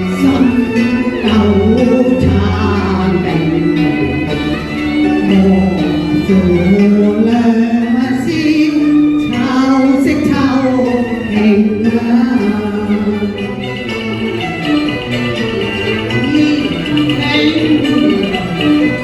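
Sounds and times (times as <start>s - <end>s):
opera instrumental accompaniment: 0.0s - 19.0s
woman singing with vibrato: 0.0s - 19.0s.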